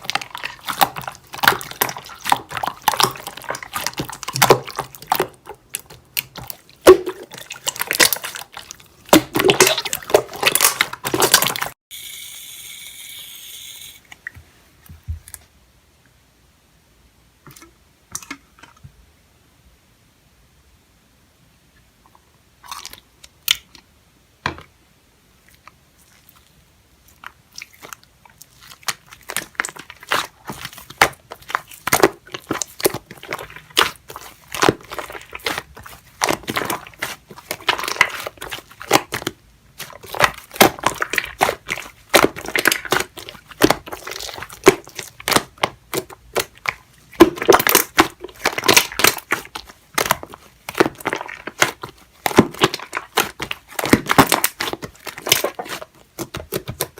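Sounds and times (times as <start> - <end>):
slime crackling and popping: 28.6 - 56.9.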